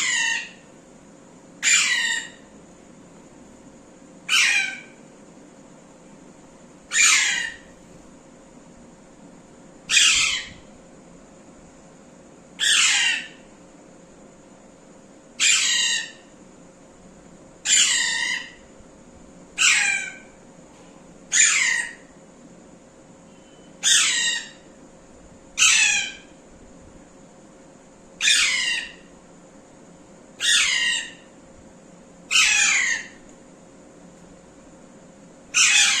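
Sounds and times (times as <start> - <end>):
parrot squawking: 0.0 - 0.7, 1.6 - 2.5, 4.3 - 5.0, 6.9 - 7.7, 9.9 - 10.6, 12.6 - 13.4, 15.4 - 16.2, 17.7 - 18.6, 19.6 - 20.2, 21.3 - 22.1, 23.8 - 24.7, 25.6 - 26.2, 28.2 - 29.1, 30.4 - 31.3, 32.3 - 33.2, 35.5 - 36.0.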